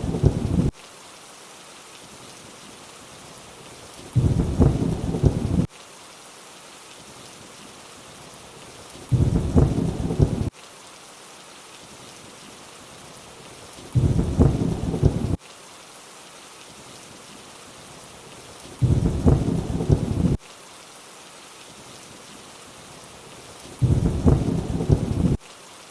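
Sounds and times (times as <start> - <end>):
low rumble of thunder: 0.0 - 0.7, 4.2 - 5.7, 9.1 - 10.5, 13.9 - 15.4, 18.8 - 20.4, 23.8 - 25.4
steady rain hiss: 0.0 - 25.9.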